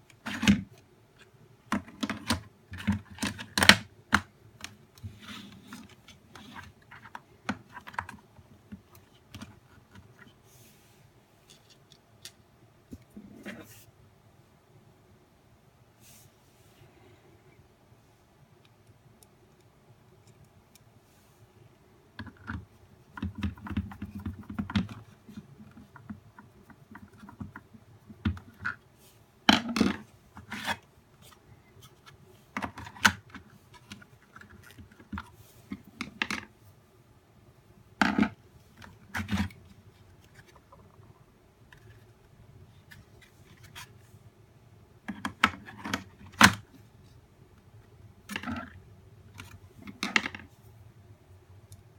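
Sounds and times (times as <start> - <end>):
plastic scraping and rubbing: 22.2 - 28.8, 38.0 - 42.2.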